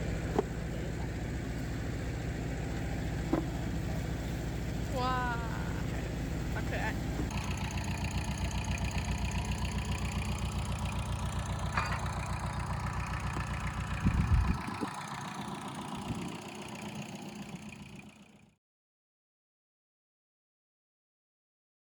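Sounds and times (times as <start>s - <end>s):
farm machine engine running: 0.0s - 18.4s
loud clunk: 11.6s - 12.5s.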